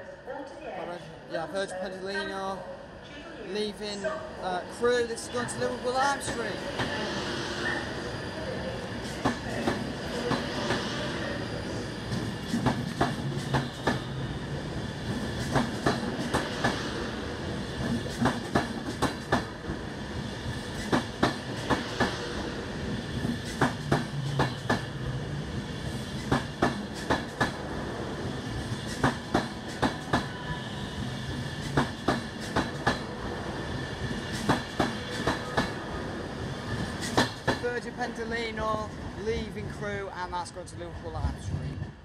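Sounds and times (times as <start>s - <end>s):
electric train hum: 2.9s - 42.0s
train wheels clicking over rail joints: 12.1s - 14.1s, 15.1s - 16.8s, 17.8s - 19.8s, 20.5s - 22.2s, 23.2s - 24.9s, 25.9s - 27.6s, 28.6s - 30.3s, 31.6s - 33.1s, 34.2s - 35.8s, 36.8s - 37.6s.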